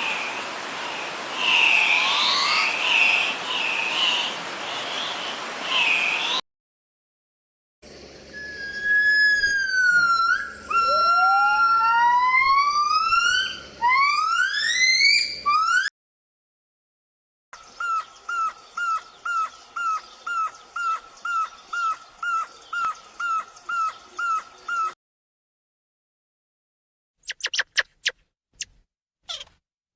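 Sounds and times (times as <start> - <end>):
rising whistle-like animal cries: 8.3 - 15.9
short repeated animal calls: 29.3 - 29.6.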